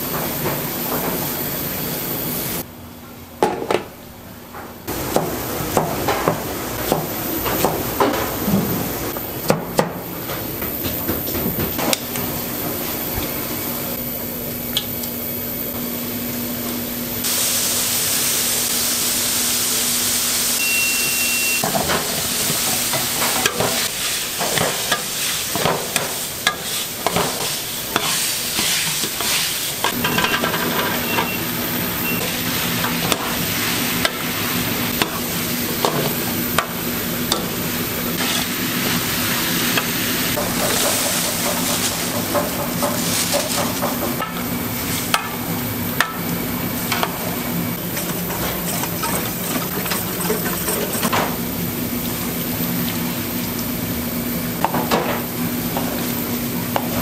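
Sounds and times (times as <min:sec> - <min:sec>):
food sizzling in a pan: 0:17.2 - 0:51.5
utensils clattering: 0:21.6 - 0:31.4, 0:47.9 - 0:51.4.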